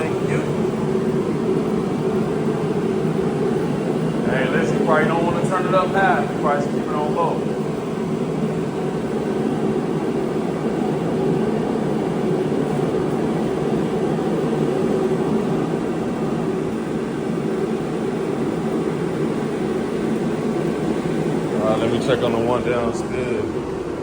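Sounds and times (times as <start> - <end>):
gas heater rushing noise: 0.0 - 24.0.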